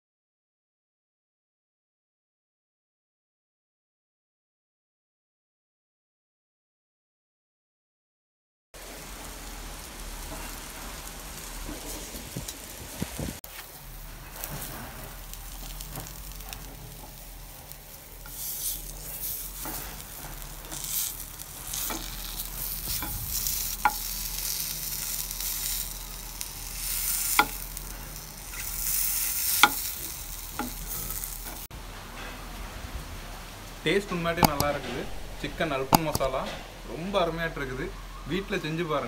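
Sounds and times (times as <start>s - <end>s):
chicken sizzling in oil: 8.8s - 32.3s.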